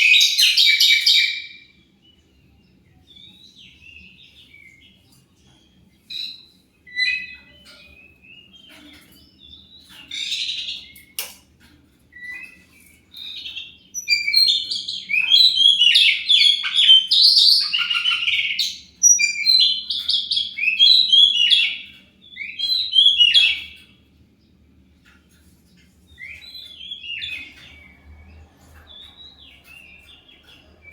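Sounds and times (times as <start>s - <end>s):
magpie-robin singing: 0.0s - 1.7s, 3.1s - 11.2s, 12.1s - 24.0s, 26.1s - 28.0s.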